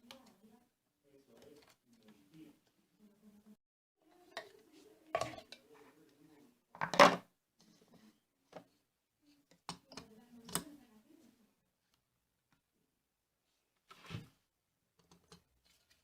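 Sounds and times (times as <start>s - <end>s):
hard objects clattering and knocking: 6.8s - 7.3s.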